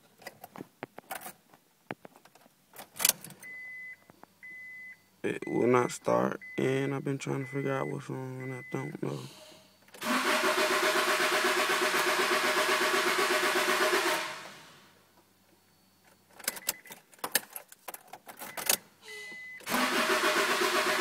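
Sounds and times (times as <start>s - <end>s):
car engine cranking: 9.9s - 14.6s, 19.6s - 21.0s
keys rattling in ignition: 16.0s - 18.8s
short beep: 19.0s - 19.6s.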